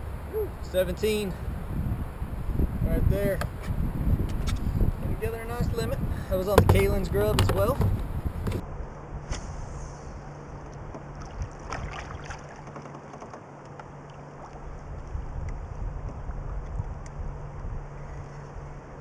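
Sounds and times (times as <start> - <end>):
river water: 0.0 - 2.8, 4.8 - 19.0
wind: 0.0 - 19.0
light knocks: 6.5 - 8.6.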